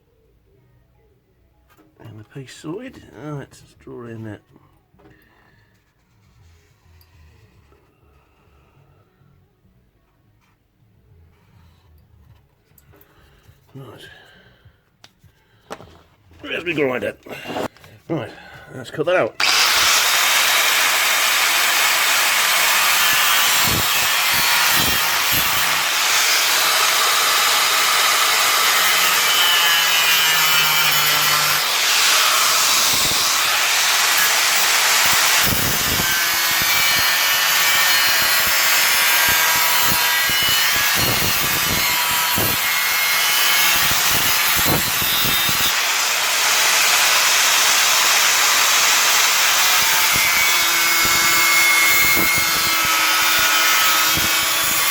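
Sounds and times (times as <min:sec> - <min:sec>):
angle grinder cutting sheet metal: 0:19.4 - 0:54.9.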